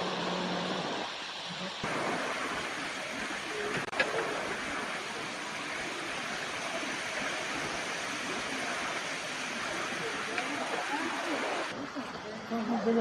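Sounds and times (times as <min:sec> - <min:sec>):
heavy rain: 0:00.0 - 0:11.8.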